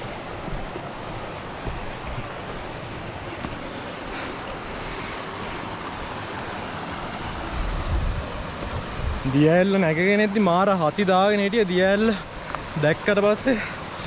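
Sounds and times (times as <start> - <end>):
water rushing over waterfall: 0.0 - 14.0
wind buffeting microphone: 7.2 - 9.6.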